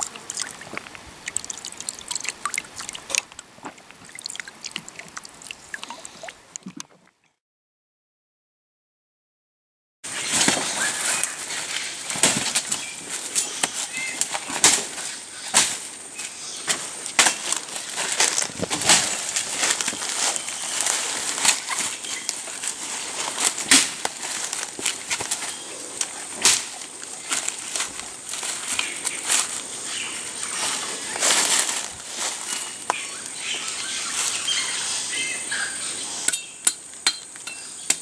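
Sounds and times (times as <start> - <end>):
crackling and rustling: 10.1 - 34.5.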